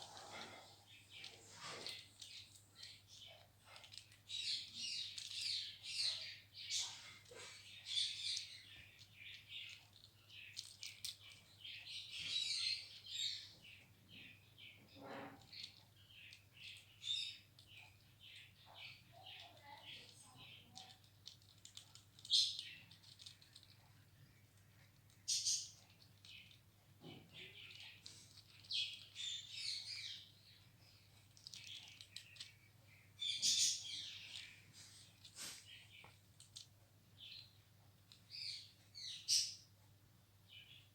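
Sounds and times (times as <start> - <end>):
parakeet chirping and squawking: 25.2 - 30.6, 33.2 - 36.0.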